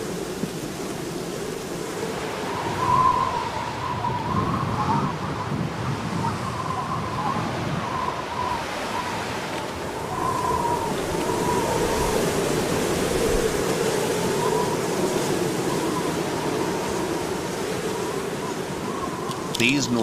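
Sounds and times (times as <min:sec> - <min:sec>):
wind blowing: 0:00.0 - 0:20.0
thin wavering whistle: 0:02.4 - 0:09.3, 0:09.9 - 0:12.3.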